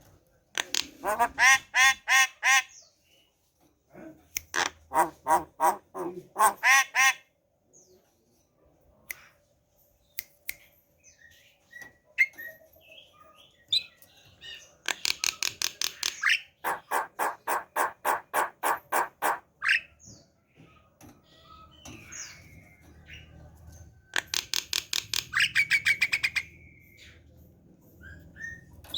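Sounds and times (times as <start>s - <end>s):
bird singing: 11.0s - 24.3s, 25.3s - 28.9s.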